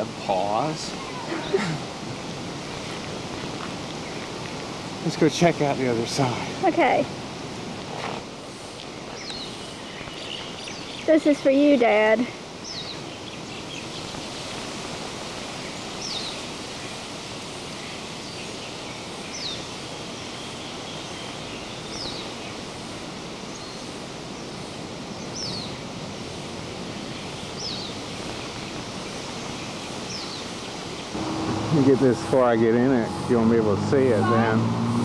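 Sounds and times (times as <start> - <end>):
steady outdoor rushing noise: 0.0 - 35.0
bird chirping: 9.0 - 11.5, 12.6 - 14.6.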